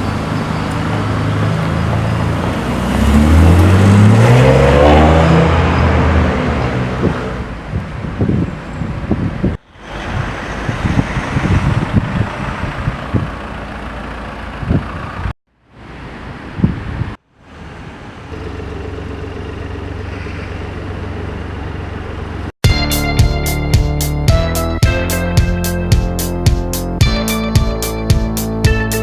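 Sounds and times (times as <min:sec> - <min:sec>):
supercar engine: 0:00.0 - 0:08.3, 0:17.5 - 0:22.5
street traffic: 0:00.0 - 0:29.0
wind on microphone: 0:06.3 - 0:13.4, 0:16.2 - 0:17.2.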